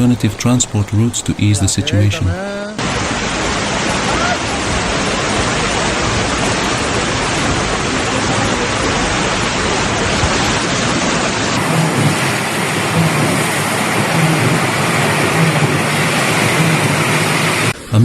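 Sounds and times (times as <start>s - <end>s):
rushing water: 0.0s - 18.0s.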